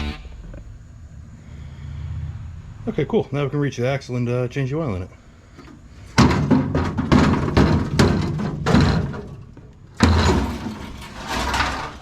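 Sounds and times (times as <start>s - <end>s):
metallic clanks and knocks: 6.2s - 12.0s.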